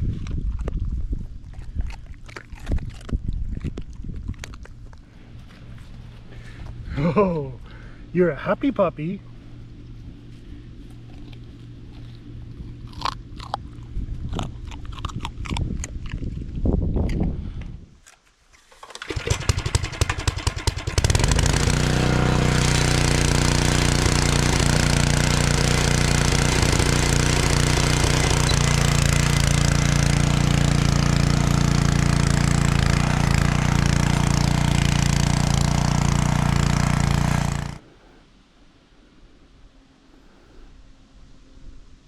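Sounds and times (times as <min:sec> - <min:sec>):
small petrol engine cranking and running: 0:18.6 - 0:37.8.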